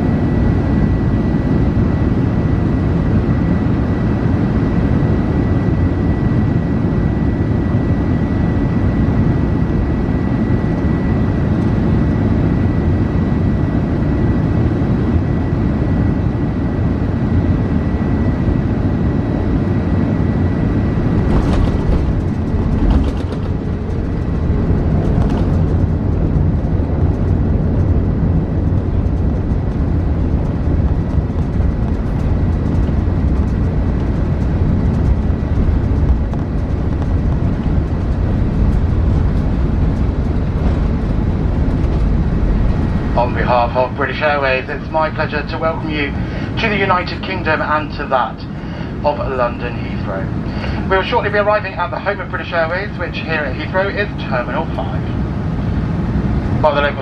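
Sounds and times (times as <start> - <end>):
airliner cabin engine rumble: 0.0 - 57.0
low thump: 21.2 - 24.4.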